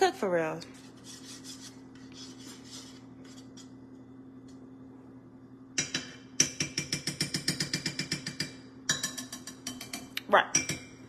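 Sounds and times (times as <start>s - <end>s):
faint steady hum: 0.0s - 11.0s
utensil clinking against cookware: 5.8s - 11.0s.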